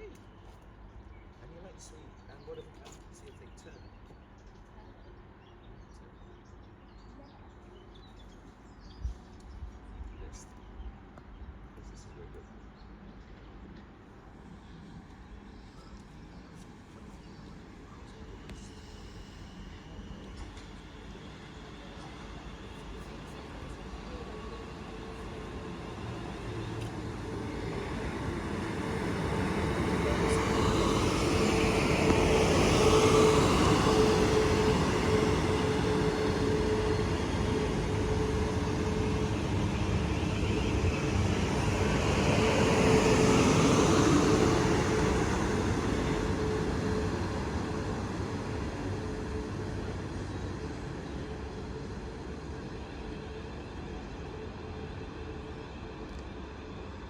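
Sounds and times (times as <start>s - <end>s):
passenger train passing: 9.9s - 57.0s
steady hum: 14.4s - 53.7s.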